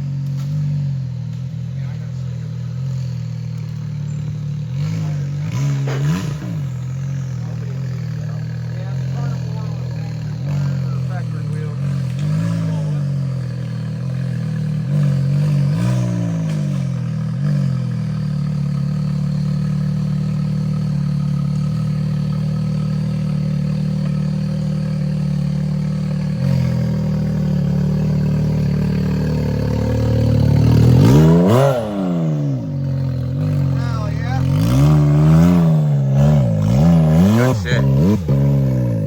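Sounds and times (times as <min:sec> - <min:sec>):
utility vehicle engine revving: 0:00.0 - 0:39.0.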